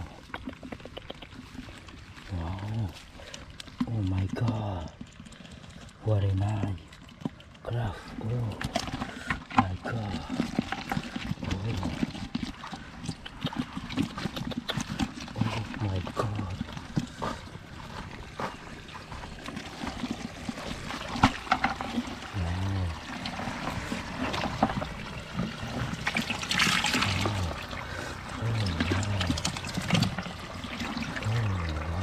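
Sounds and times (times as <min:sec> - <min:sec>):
shallow water trickling: 0:00.0 - 0:32.0
rush of water: 0:08.8 - 0:32.0
short low hums: 0:22.2 - 0:32.0.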